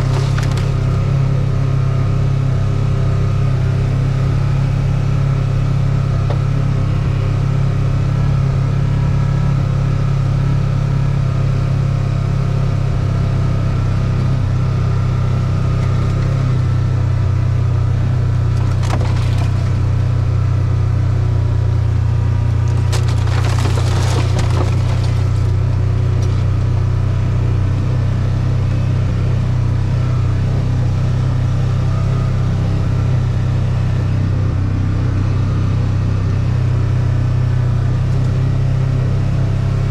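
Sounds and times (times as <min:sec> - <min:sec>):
crackling and snapping: 0:22.6 - 0:26.8.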